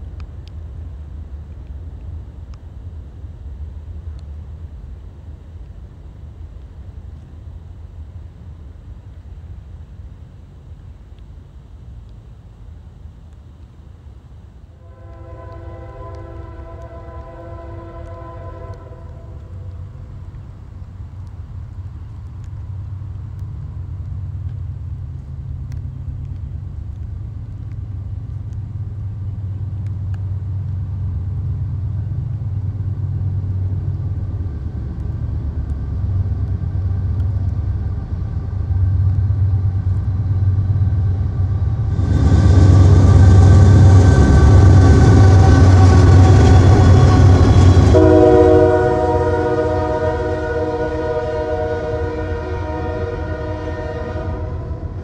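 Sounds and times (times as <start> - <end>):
locomotive engine rumble: 0.0 - 55.0
loud rushing noise: 41.4 - 50.4.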